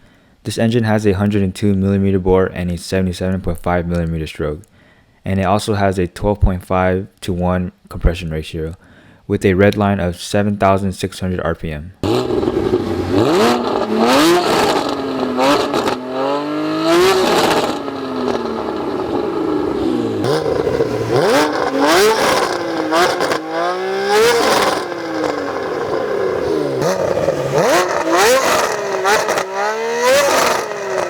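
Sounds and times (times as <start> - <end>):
car engine revving hard: 12.0 - 31.0.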